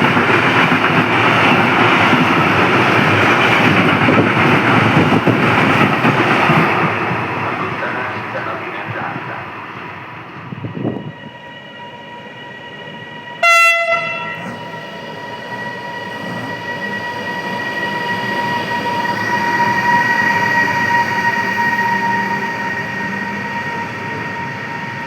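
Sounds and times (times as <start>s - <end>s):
approaching train whine and rumble: 0.0s - 25.0s
train horn blast: 13.4s - 14.8s.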